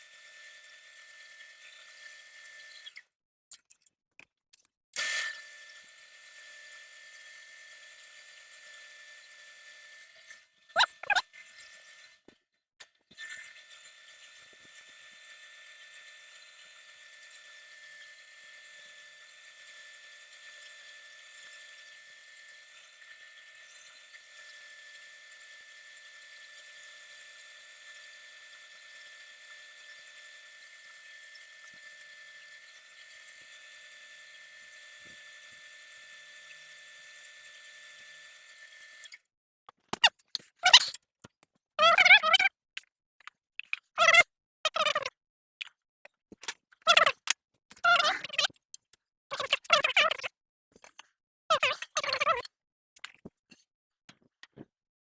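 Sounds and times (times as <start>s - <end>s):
machine high-pitched whine: 13.2s - 39.1s.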